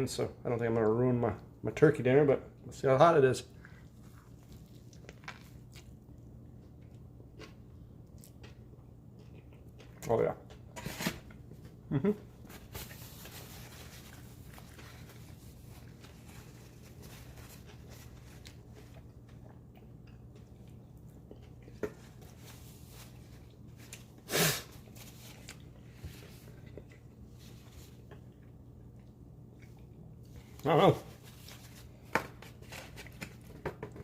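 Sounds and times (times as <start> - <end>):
chewing fried chicken: 3.5 - 10.6, 13.8 - 24.2, 24.8 - 30.8.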